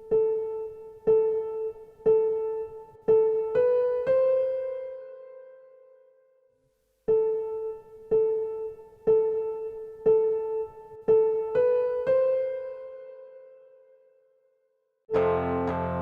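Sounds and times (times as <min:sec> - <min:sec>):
piano single notes: 0:15.1 - 0:16.0.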